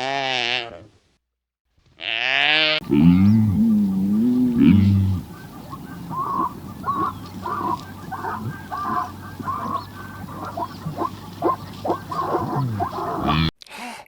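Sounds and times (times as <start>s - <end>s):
farm birds calling: 2.8s - 13.5s.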